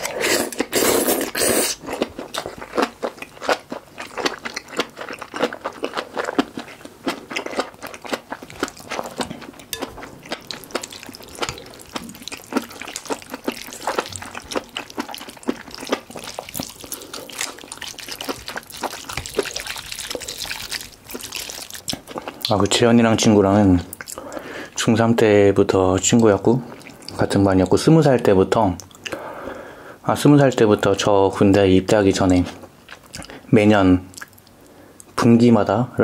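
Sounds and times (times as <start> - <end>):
wet chewing of noodle soup: 0.0 - 22.6, 26.1 - 27.8.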